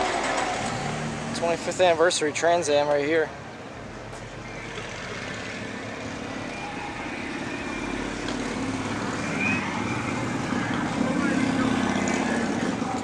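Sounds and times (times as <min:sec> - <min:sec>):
car engine running: 0:03.7 - 0:13.0.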